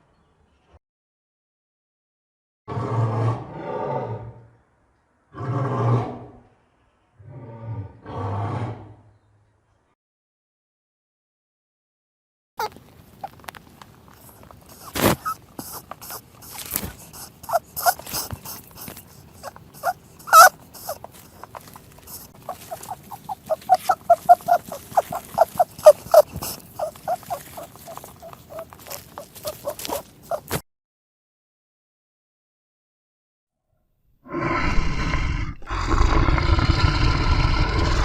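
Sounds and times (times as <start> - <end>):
animal short calls: 14.2 - 30.6.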